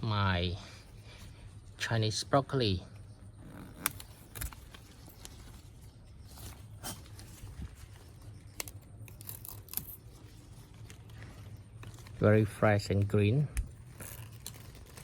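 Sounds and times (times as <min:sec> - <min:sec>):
leaves rustling: 0:09.2 - 0:13.2.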